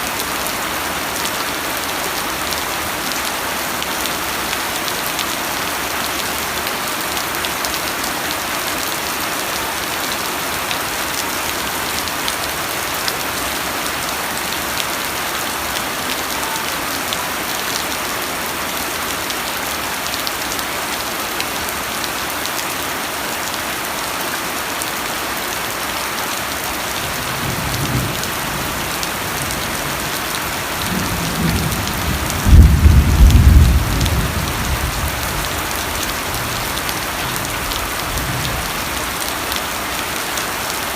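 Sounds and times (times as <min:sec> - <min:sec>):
heavy rain: 0:00.0 - 0:40.9
thunder rumble: 0:30.9 - 0:35.6.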